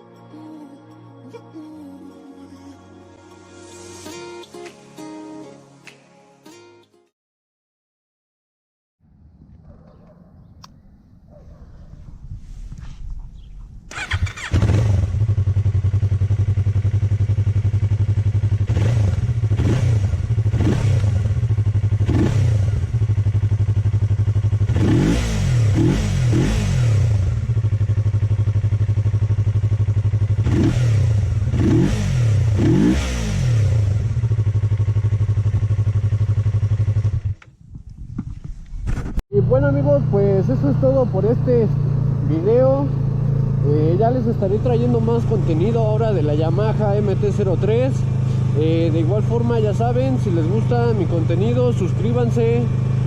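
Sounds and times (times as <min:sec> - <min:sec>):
motorcycle engine starting: 0:13.1 - 0:53.0
motorcycle engine idling: 0:13.9 - 0:32.6, 0:33.8 - 0:38.5, 0:39.4 - 0:53.0
motorcycle throttle revving: 0:13.9 - 0:53.0.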